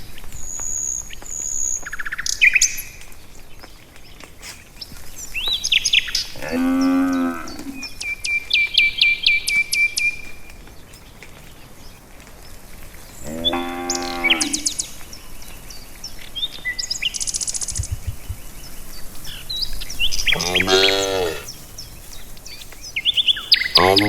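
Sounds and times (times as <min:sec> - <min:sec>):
birdsong: 0:00.0 - 0:24.0
cow mooing: 0:06.4 - 0:07.8, 0:13.2 - 0:14.7, 0:20.3 - 0:21.5, 0:23.8 - 0:24.0.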